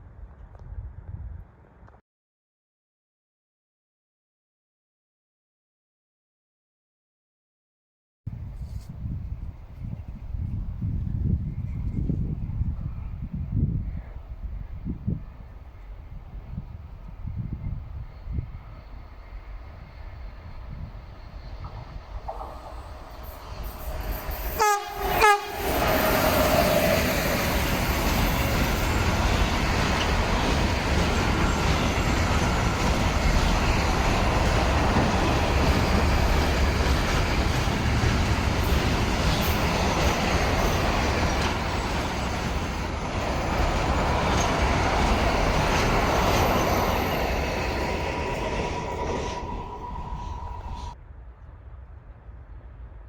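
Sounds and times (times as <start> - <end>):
train wheels clattering on rails: 21.6 - 24.5, 25.7 - 49.8
train horn: 23.7 - 27.1.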